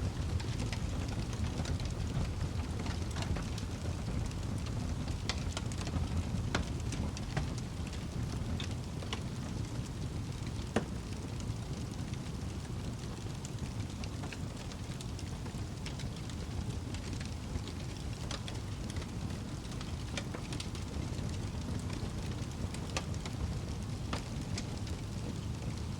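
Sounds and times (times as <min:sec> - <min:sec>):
wood fire crackling: 0:00.0 - 0:25.9.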